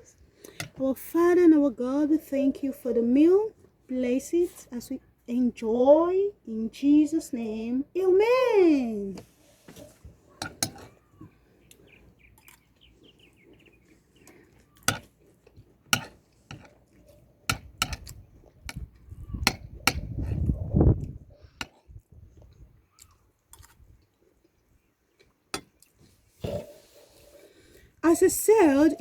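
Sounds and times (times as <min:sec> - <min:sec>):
cutlery clinking against a dish: 0:10.4 - 0:11.0, 0:17.5 - 0:18.0.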